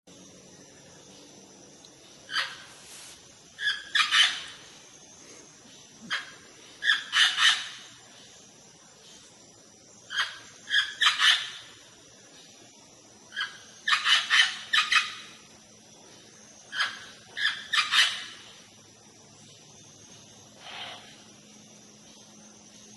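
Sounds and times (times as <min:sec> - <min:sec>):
parrot calling: 0:02.3 - 0:02.7, 0:03.6 - 0:04.5, 0:13.3 - 0:15.3, 0:16.7 - 0:18.3.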